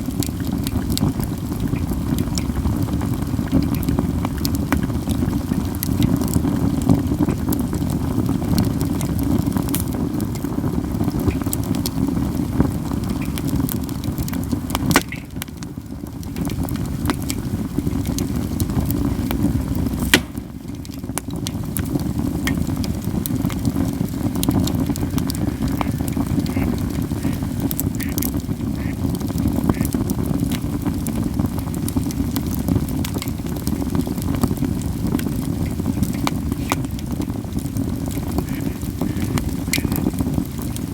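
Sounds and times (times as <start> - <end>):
campfire crackling: 0.0 - 40.9
sharp loud pops of burning wood: 0.0 - 40.9.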